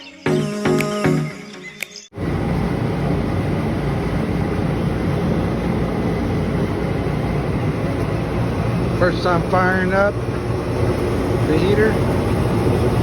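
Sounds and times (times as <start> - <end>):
intro music: 0.0 - 2.6
gas heating unit rumbling: 2.2 - 13.0.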